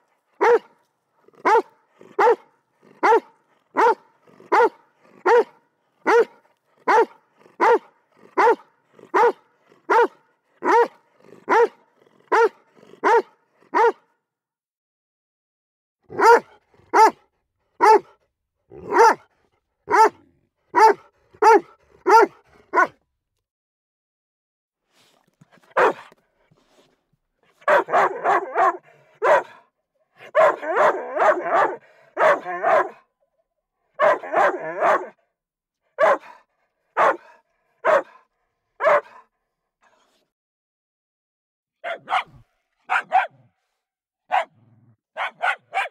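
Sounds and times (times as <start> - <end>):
dog barking: 0.4 - 0.8, 1.4 - 14.1, 16.1 - 17.2, 17.8 - 18.2, 18.8 - 19.3, 19.9 - 23.0, 25.7 - 26.1, 27.6 - 33.1, 33.9 - 35.2, 35.9 - 39.3, 41.8 - 43.5, 44.3 - 45.9.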